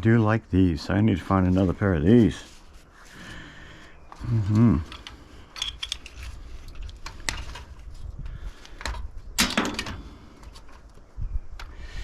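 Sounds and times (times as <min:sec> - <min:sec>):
metal tools clinking: 0:04.8 - 0:07.7.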